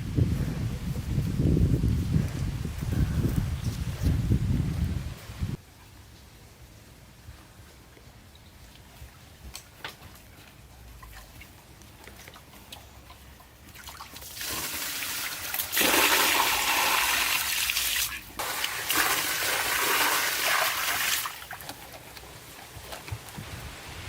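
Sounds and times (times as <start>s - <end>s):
water rushing and pouring: 13.8s - 21.7s.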